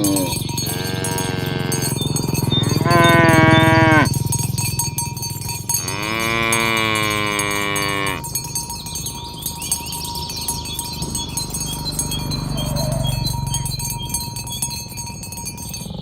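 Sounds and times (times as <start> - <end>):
cattle mooing: 0.0 - 4.2, 5.7 - 8.3, 11.2 - 13.9.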